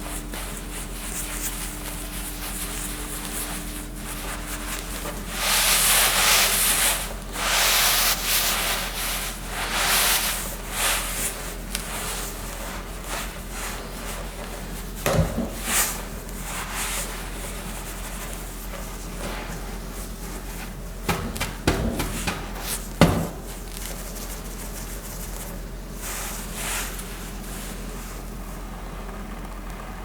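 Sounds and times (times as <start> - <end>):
sharp knock: 21.1 - 23.5.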